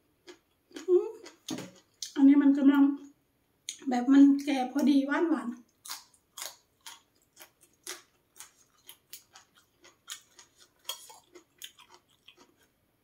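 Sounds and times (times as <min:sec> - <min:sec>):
crisp crunches of chewing bean: 0:05.7 - 0:12.7.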